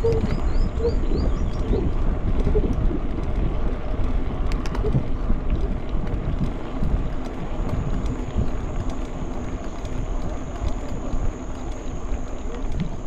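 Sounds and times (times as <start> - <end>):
mountain bike rumble and rattle: 0.0 - 13.0
wind buffeting microphone: 0.0 - 13.0.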